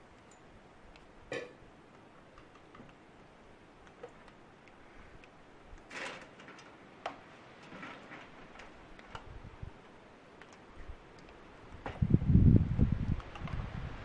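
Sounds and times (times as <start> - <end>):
faint clicks and taps: 1.9 - 9.3, 10.4 - 12.0.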